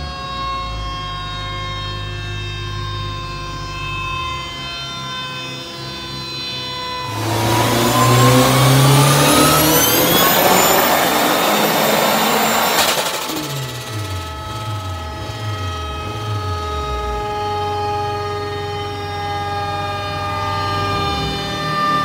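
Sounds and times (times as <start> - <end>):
car engine revving under load: 7.0 - 18.6.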